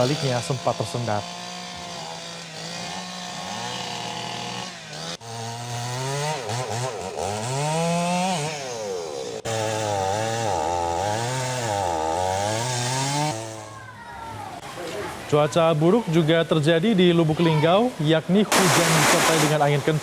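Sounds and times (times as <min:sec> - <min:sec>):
chainsaw revving while cutting: 0:00.0 - 0:13.7.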